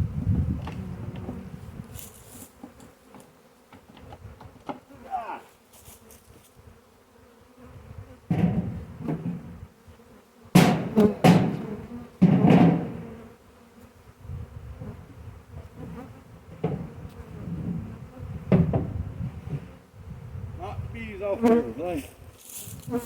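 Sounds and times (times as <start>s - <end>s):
honey bee swarm buzzing: 0.0s - 23.0s
knocks and thumps: 8.3s - 9.5s, 10.6s - 13.0s, 16.6s - 17.0s, 18.5s - 18.9s.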